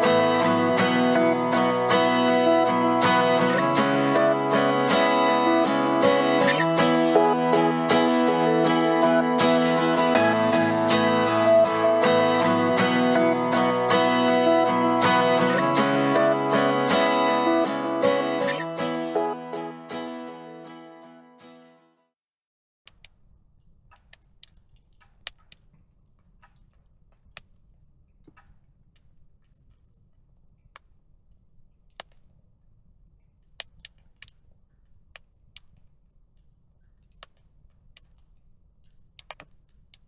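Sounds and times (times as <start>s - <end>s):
background music: 0.0s - 21.8s
wood fire crackling and popping: 22.9s - 40.0s.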